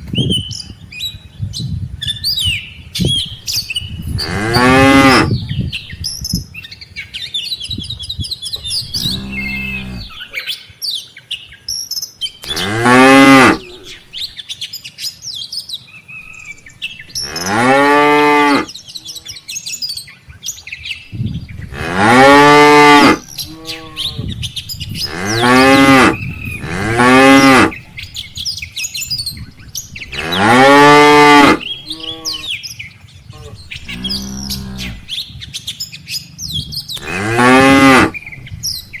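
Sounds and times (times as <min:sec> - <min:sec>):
cows mooing: 0:04.2 - 0:05.3, 0:09.0 - 0:10.2, 0:12.4 - 0:14.0, 0:17.2 - 0:19.2, 0:21.7 - 0:24.4, 0:25.0 - 0:27.8, 0:30.1 - 0:32.6, 0:33.4 - 0:35.1, 0:37.0 - 0:38.2.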